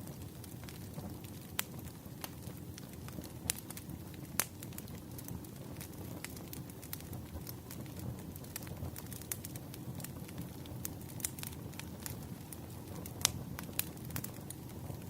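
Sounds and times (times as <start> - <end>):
burning logs rumbling: 0.0 - 15.0
sharp pops of fire: 0.1 - 15.0.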